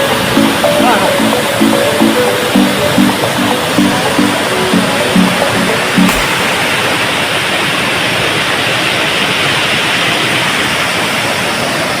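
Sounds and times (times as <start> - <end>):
waterfall rushing: 6.1 - 7.9.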